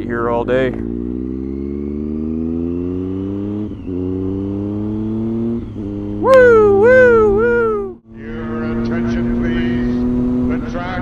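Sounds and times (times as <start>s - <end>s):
motorcycle engine accelerating: 0.0s - 11.0s
rider shouting: 6.2s - 8.0s.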